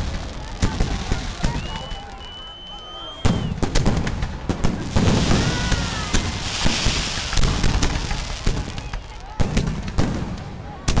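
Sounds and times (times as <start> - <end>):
fireworks crackling hiss: 0.0 - 2.6, 3.2 - 10.6
fireworks whistling: 0.0 - 10.4
fireworks bangs and pops: 0.0 - 11.0.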